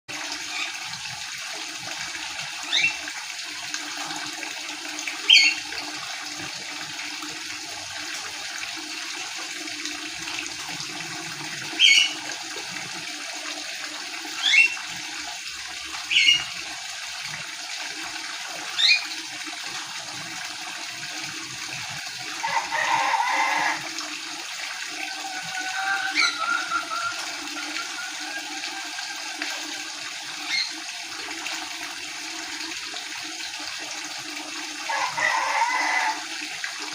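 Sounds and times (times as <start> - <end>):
birds chirping: 11.8 - 12.2, 25.6 - 27.8
hen clucking: 22.4 - 23.9, 25.0 - 29.0, 34.9 - 36.2.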